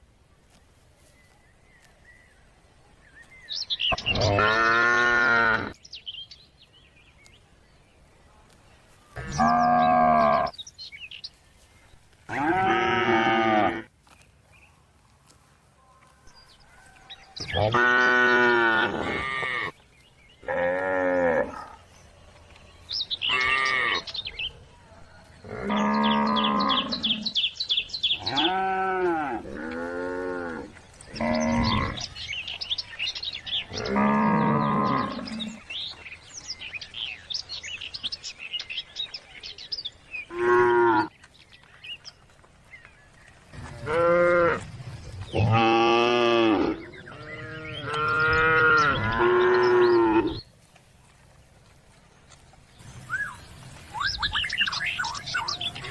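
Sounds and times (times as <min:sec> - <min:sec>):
cattle mooing: 0:04.0 - 0:05.8, 0:12.3 - 0:13.9, 0:17.4 - 0:19.7, 0:25.5 - 0:27.3, 0:28.2 - 0:32.1, 0:33.7 - 0:35.6, 0:43.6 - 0:44.6, 0:45.4 - 0:50.4.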